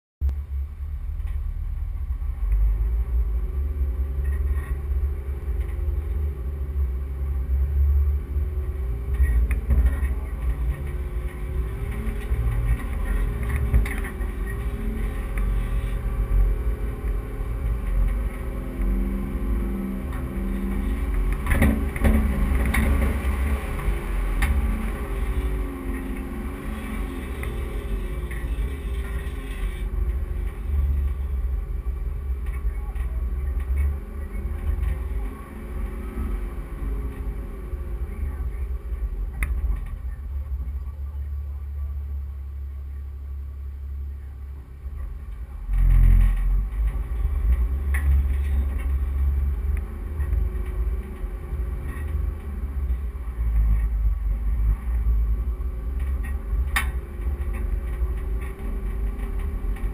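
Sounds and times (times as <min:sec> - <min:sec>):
heavy low rumble: 0:00.2 - 0:59.9
vehicle engine revving: 0:01.7 - 0:40.4.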